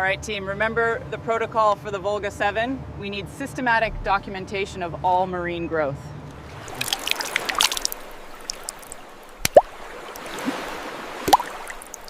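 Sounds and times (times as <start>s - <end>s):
water trickling and dripping: 6.3s - 12.0s
water drops plopping: 6.7s - 12.0s.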